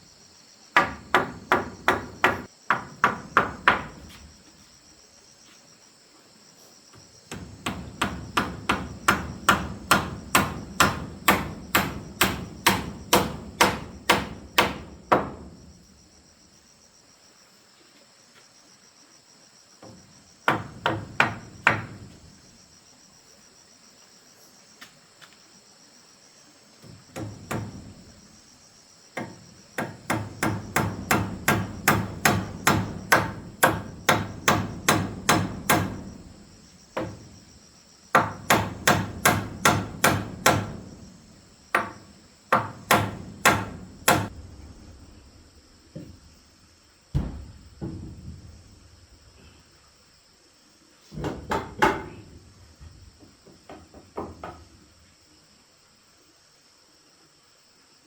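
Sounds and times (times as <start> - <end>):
high insect drone: 0.0 - 58.0
hammer driving nails into wood: 0.8 - 4.1, 7.3 - 15.4, 27.1 - 27.9, 29.2 - 36.2, 38.2 - 41.0, 41.7 - 44.3.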